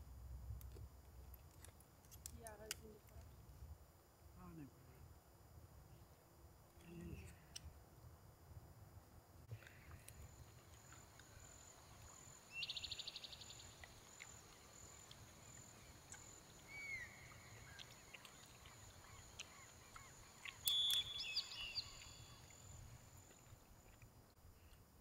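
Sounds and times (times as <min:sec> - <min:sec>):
songbirds calling: 0:09.8 - 0:23.6.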